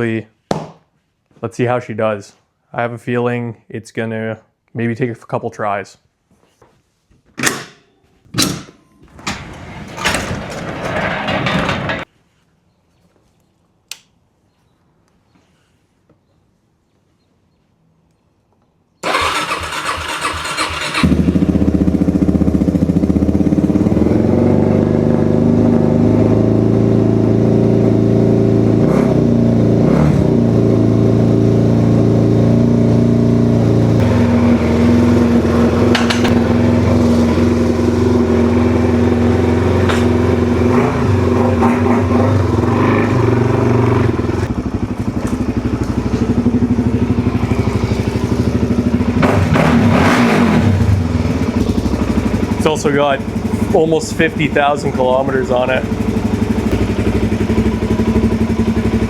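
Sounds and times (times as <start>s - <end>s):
motorcycle engine cranking: 19.0s - 23.5s
motorcycle engine idling: 19.1s - 28.5s, 31.3s - 49.4s, 51.0s - 59.0s.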